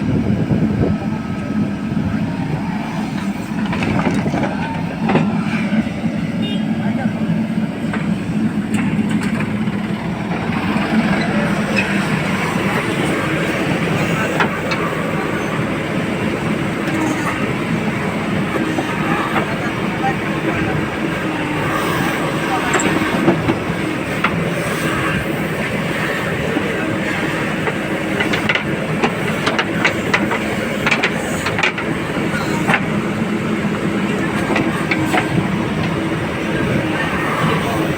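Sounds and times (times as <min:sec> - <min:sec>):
heavy diesel engine running: 0:00.0 - 0:37.9
metallic clanks and knocks: 0:03.6 - 0:05.3.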